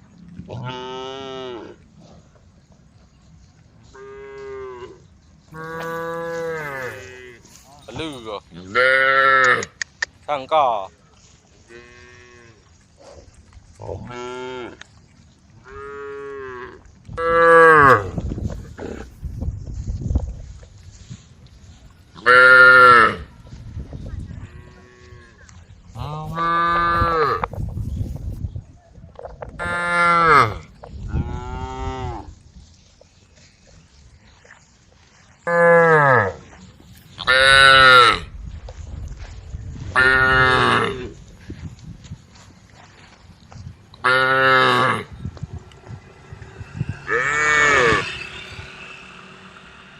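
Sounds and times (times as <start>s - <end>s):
cows mooing: 3.9s - 9.8s, 15.6s - 19.2s, 22.2s - 23.3s, 24.4s - 27.5s, 29.6s - 32.3s, 35.4s - 36.4s, 40.0s - 41.2s, 44.0s - 49.9s.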